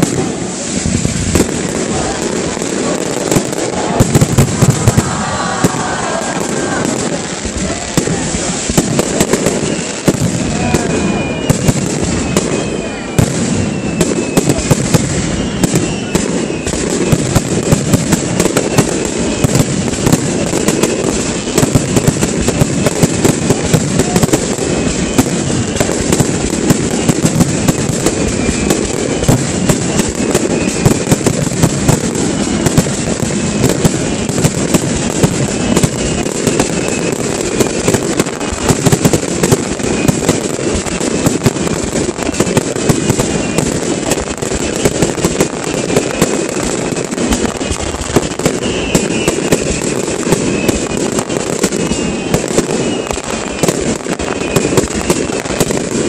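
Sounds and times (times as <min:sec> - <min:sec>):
fireworks bursting and crackling: 0:00.0 - 0:56.0.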